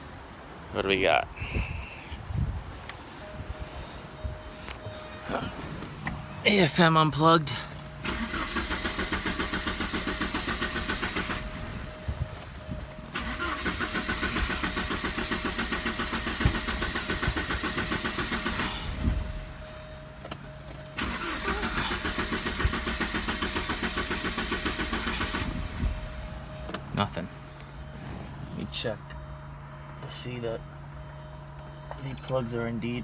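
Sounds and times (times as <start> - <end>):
engine cranking without starting: 7.5 - 11.8, 13.1 - 19.4, 20.9 - 26.0.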